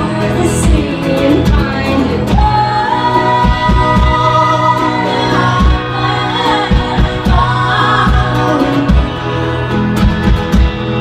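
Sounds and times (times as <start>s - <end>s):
voices singing in harmony: 0.0s - 10.3s.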